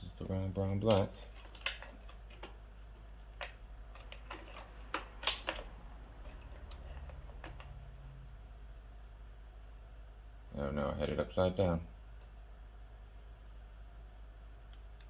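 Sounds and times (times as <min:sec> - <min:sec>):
plastic connectors clicking: 0:00.7 - 0:05.7.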